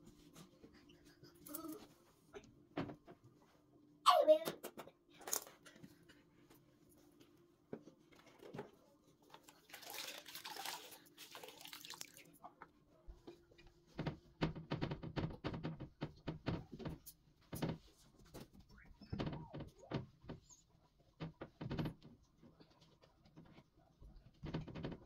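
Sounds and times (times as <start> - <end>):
objects knocking and clattering: 13.9 - 20.5, 21.2 - 22.2, 24.3 - 25.0.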